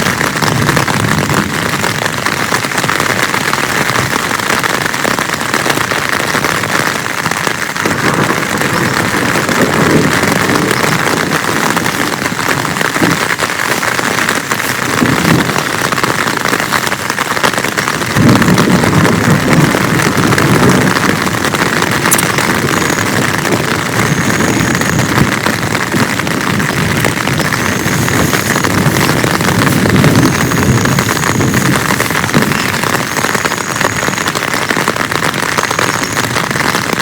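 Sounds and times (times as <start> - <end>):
heavy rain pouring: 0.0 - 37.0.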